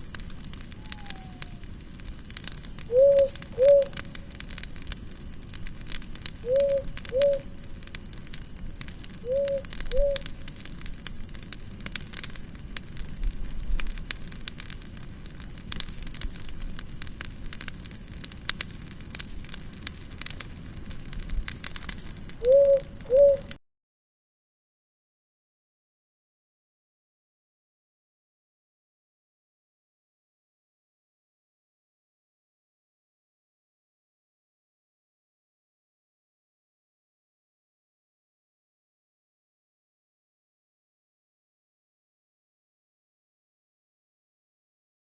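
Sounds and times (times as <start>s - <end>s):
campfire crackling and popping: 0.0s - 23.6s
bird call of short notes: 0.8s - 1.6s.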